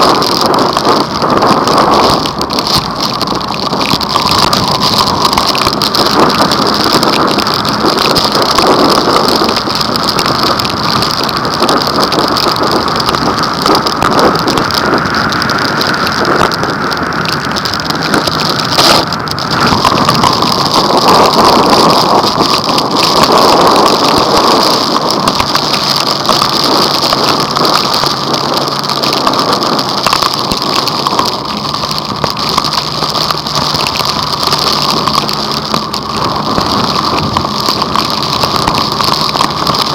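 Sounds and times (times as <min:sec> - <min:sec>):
heavy rain on a vehicle: 0:00.0 - 0:39.9.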